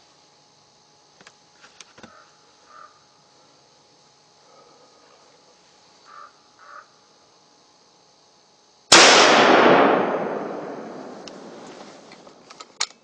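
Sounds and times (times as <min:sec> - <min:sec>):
faint calls: 0:02.1 - 0:03.1, 0:06.0 - 0:07.0
gunshot with echo: 0:08.9 - 0:12.1.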